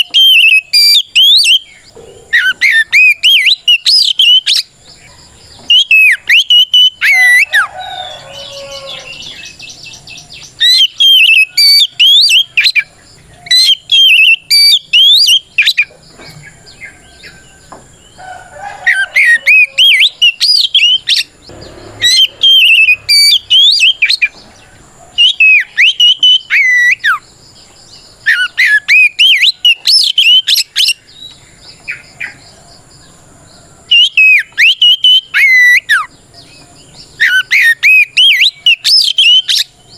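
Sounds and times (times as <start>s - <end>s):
bird singing whistled phrases: 0.0s - 4.7s, 5.7s - 7.7s, 10.4s - 15.9s, 18.9s - 21.3s, 22.0s - 24.4s, 25.2s - 27.2s, 28.2s - 31.3s, 33.9s - 36.1s, 37.2s - 39.7s
scratchy chattering bird notes: 18.9s - 27.2s.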